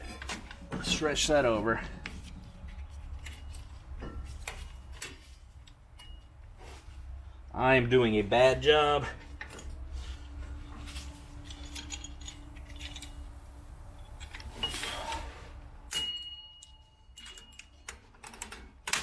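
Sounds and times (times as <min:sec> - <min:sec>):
metal clinks and scrapes: 0:00.0 - 0:07.0, 0:09.5 - 0:17.9.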